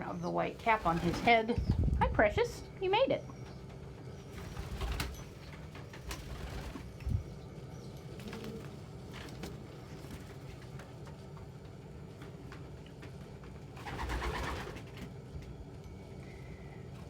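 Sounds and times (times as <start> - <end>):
pigeons cooing: 3.1 - 10.3.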